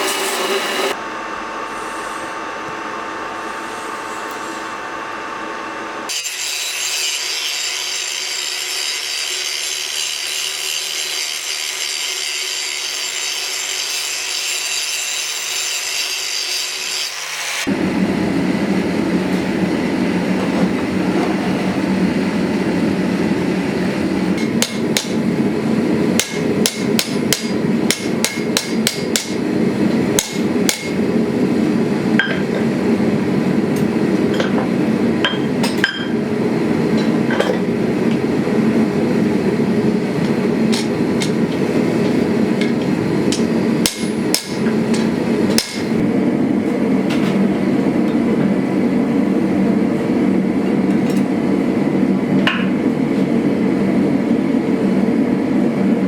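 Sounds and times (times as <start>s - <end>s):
hammer striking steel: 24.4s - 25.2s, 26.2s - 29.4s, 30.2s - 31.0s, 43.3s - 45.9s.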